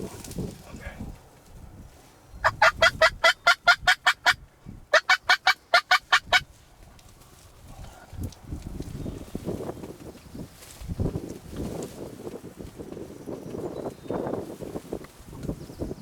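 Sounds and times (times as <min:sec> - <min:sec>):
turkey calling: 0:02.4 - 0:06.5.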